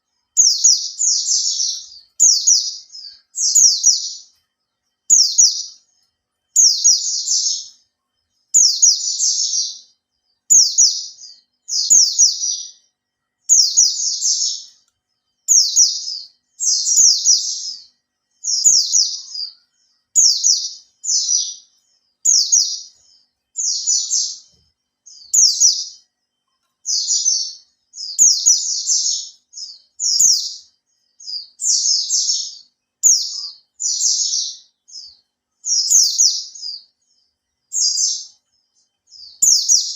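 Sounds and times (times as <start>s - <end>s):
bird twittering: 0.0s - 4.4s, 5.1s - 7.8s, 8.5s - 26.1s, 26.8s - 39.9s.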